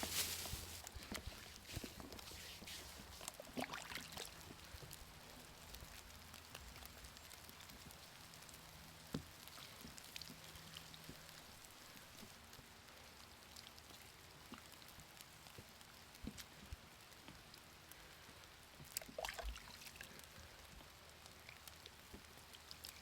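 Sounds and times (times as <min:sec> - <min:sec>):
light rain pattering: 0:00.0 - 0:23.0
raindrops ticking on surfaces: 0:00.0 - 0:23.0.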